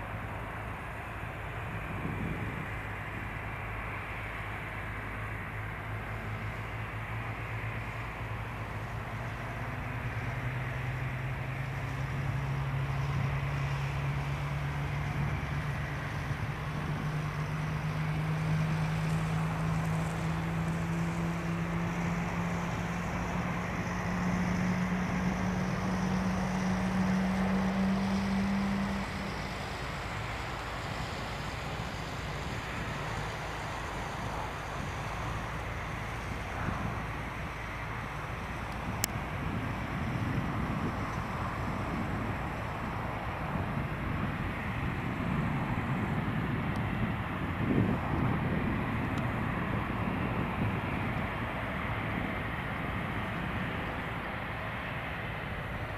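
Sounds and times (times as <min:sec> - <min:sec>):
jet engines at high thrust: 0:00.0 - 0:55.9.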